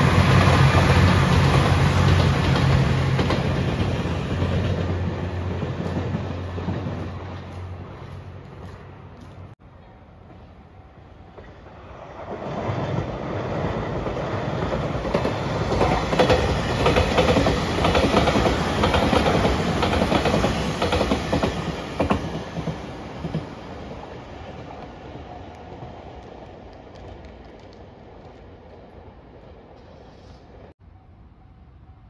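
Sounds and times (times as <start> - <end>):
train wheels clattering over rail joints: 14.0 - 23.5.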